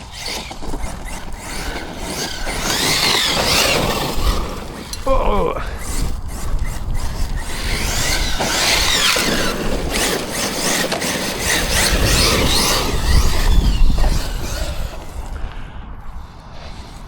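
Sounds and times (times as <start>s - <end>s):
electric motor whining: 0.0s - 17.0s
tyres on dirt and gravel: 0.0s - 17.0s
wind on microphone: 0.0s - 17.0s.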